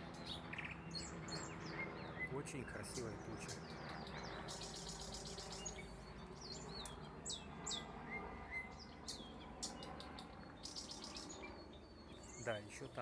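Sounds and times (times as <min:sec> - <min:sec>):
small songbirds chirping: 0:00.0 - 0:13.0
downward-sweeping bird whistles: 0:04.0 - 0:12.6.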